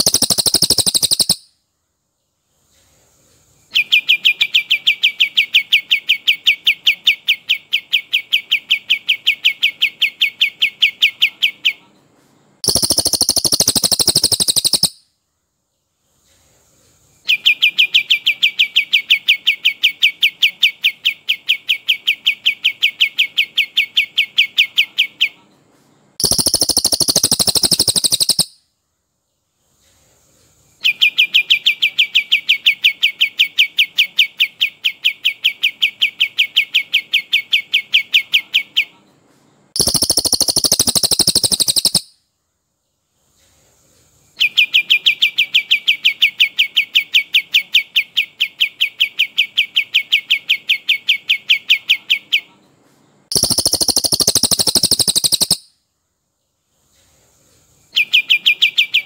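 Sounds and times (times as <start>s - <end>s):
bird's rolled trill: 0.0s - 1.4s, 12.6s - 14.9s, 39.8s - 42.0s, 53.3s - 55.6s
dense bursts of birdsong: 0.0s - 2.7s, 3.6s - 16.3s, 17.1s - 29.8s, 30.6s - 43.4s, 44.2s - 57.0s, 57.8s - 59.0s.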